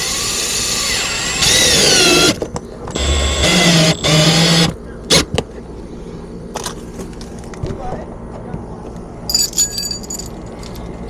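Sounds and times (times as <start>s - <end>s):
power drill driving screws: 0.0s - 5.2s.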